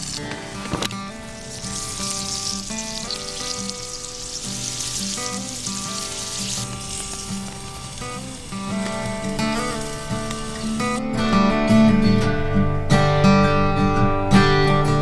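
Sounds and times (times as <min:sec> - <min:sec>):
steak sizzling in frying pan: 0:00.0 - 0:13.2.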